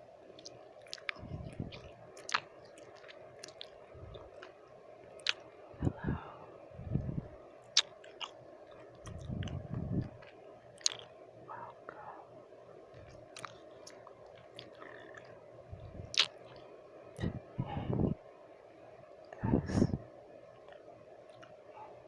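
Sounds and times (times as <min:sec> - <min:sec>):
low hiss: 0:00.0 - 0:22.0
wet mouth clicks and smacks: 0:00.4 - 0:04.5, 0:05.2 - 0:06.0, 0:07.7 - 0:11.1, 0:13.1 - 0:15.3, 0:16.0 - 0:16.6.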